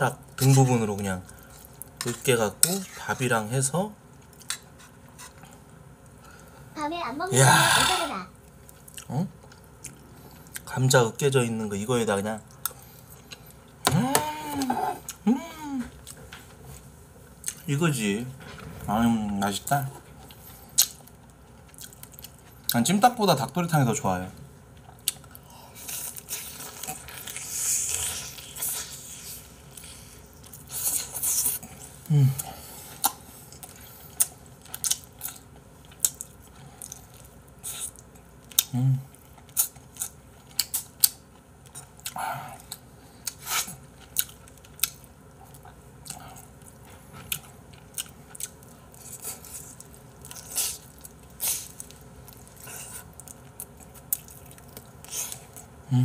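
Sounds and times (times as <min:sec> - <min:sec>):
close chewing with mouth clicks: 0:20.2 - 0:22.8, 0:24.8 - 0:55.7.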